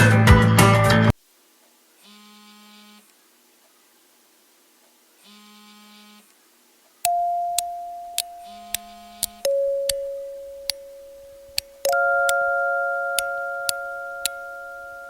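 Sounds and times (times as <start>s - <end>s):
sharp ticks: 7.1s - 12.5s, 13.1s - 14.4s
ringing tone: 7.1s - 15.0s
buzzy electronic beeps: 7.7s - 15.0s.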